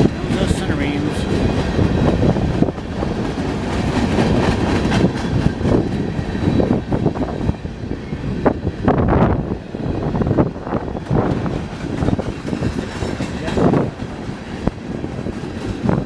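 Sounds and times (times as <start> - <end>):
train rumble: 0.0 - 16.0
train wheels clattering on rails: 0.0 - 16.0.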